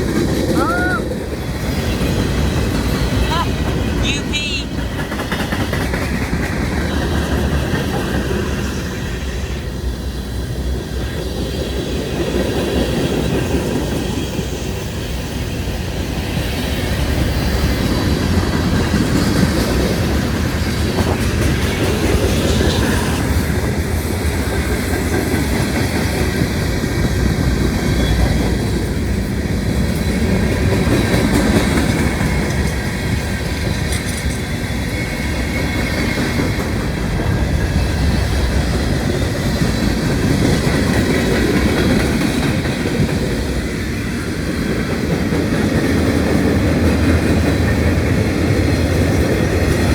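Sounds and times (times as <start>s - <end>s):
clickety-clack over rail joints: 0.0s - 49.9s
train wheels rumbling on rails: 0.0s - 49.9s.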